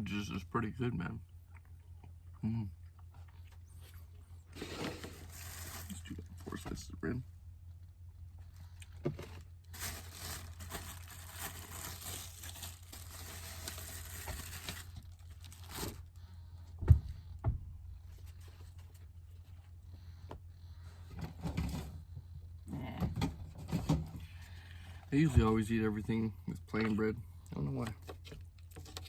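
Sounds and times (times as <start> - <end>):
steady low hum: 0.0 - 29.0
plastic bag crinkling: 4.5 - 6.6, 9.1 - 16.2.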